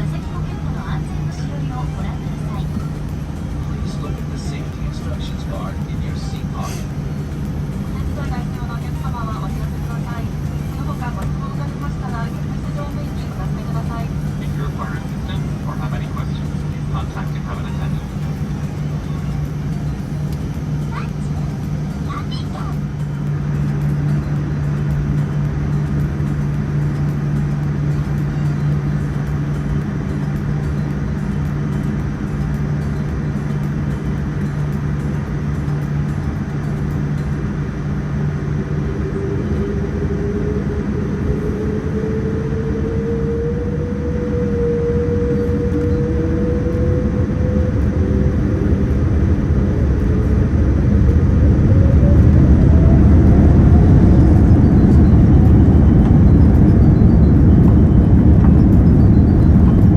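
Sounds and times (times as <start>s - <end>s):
aircraft cabin rumble: 0.0s - 59.9s
jet engines spooling up: 37.6s - 59.9s.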